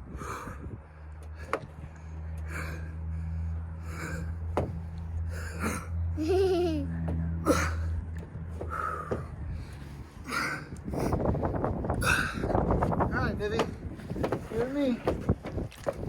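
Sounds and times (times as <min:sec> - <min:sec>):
man breathing heavily: 0:00.0 - 0:13.1
steady low hum: 0:00.0 - 0:15.7.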